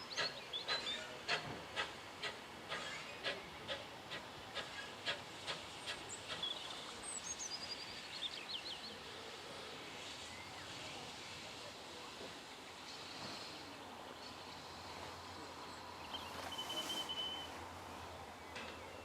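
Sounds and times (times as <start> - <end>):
train wheels clicking over rails: 0.1 - 6.7.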